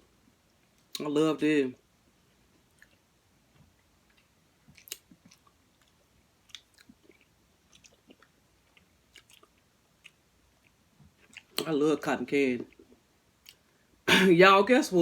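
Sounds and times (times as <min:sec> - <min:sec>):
mouth clicks and smacks eating: 0:02.6 - 0:11.8, 0:12.6 - 0:13.7.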